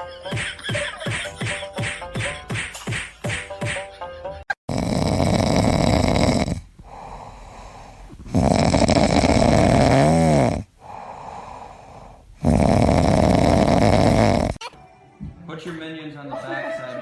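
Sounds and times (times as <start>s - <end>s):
loud snoring: 4.7s - 14.6s.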